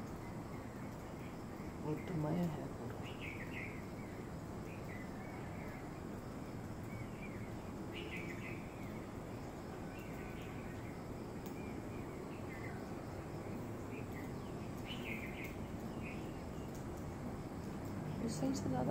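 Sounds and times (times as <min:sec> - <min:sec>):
low outdoor background noise: 0:00.0 - 0:18.9
small birds chirping: 0:00.0 - 0:18.9.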